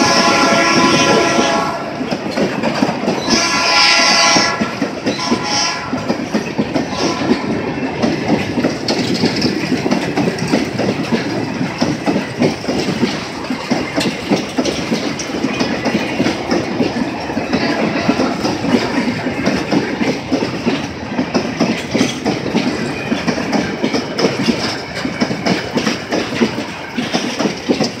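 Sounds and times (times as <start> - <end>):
train horn: 0.0 - 2.1, 3.2 - 6.1, 6.8 - 7.6
train wheels clattering: 0.0 - 28.0.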